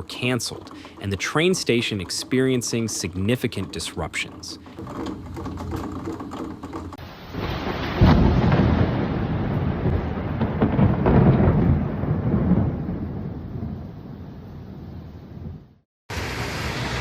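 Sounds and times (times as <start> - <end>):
thunder rumbling: 6.9 - 17.0
heavy rain: 7.0 - 14.2.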